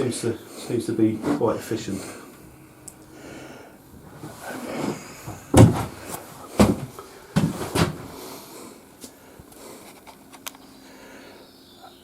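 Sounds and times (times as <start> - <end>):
rustling and scraping: 1.0 - 2.4, 3.2 - 8.4, 9.0 - 10.4
knocks and bangs: 5.3 - 8.1.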